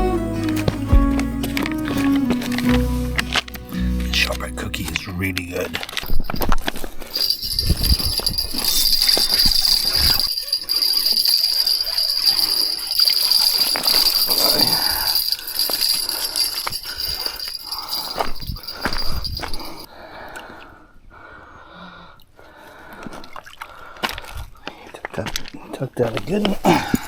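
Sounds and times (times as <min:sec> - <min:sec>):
fishing tackle clicks and rattles: 0:05.8 - 0:19.9.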